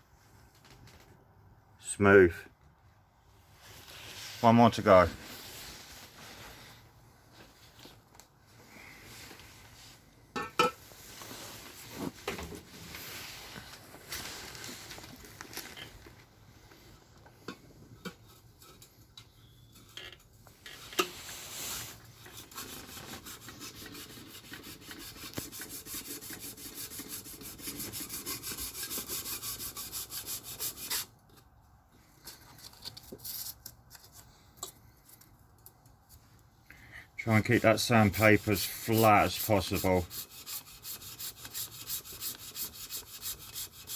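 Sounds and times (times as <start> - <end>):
sandpaper rubbing on metal: 21.7 - 31.1, 37.5 - 43.9.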